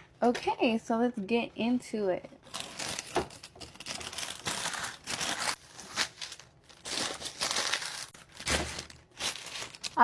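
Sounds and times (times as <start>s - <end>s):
food packaging crinkling: 2.4s - 10.0s.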